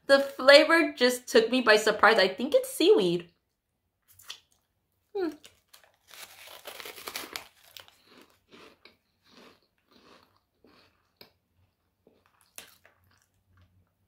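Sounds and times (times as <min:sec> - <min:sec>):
person crunching snack stick: 0:05.3 - 0:13.9.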